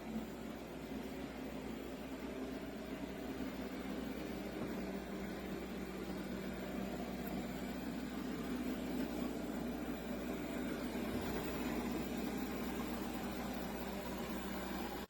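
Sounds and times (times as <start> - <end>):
robot vacuum whirring: 3.2 - 15.0.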